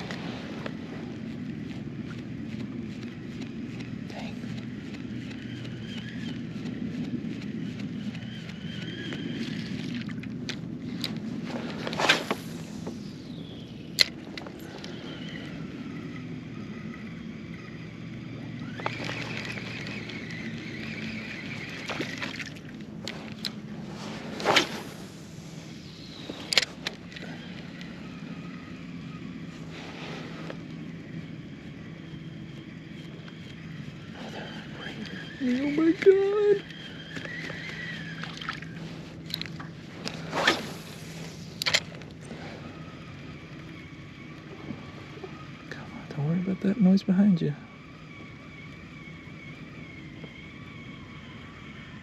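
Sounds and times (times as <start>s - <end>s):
boat motor running: 0.0s - 52.0s
faint low hum: 0.0s - 52.0s
high whirring tone: 0.0s - 52.0s
water sloshing: 18.6s - 25.3s, 37.3s - 42.3s.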